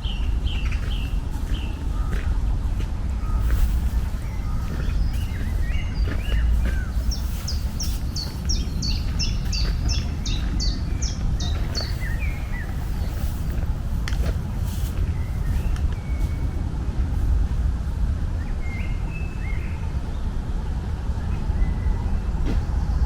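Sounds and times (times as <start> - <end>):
songbird singing: 0.0 - 17.3, 18.2 - 23.0
low outdoor rumble: 0.0 - 23.0
bird chirps: 3.2 - 13.5.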